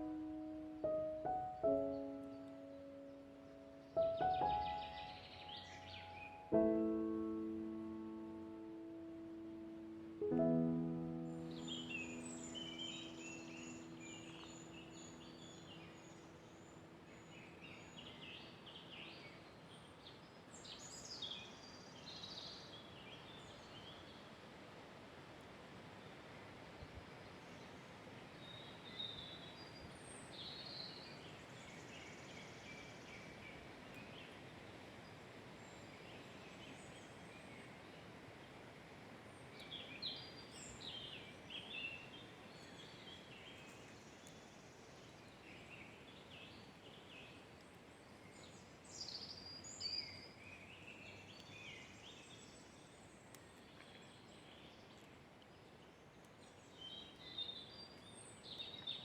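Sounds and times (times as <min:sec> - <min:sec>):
songbirds chirping and trilling: 0:00.0 - 0:06.9, 0:09.5 - 0:23.6
faint forest ambience hiss: 0:00.0 - 0:59.0.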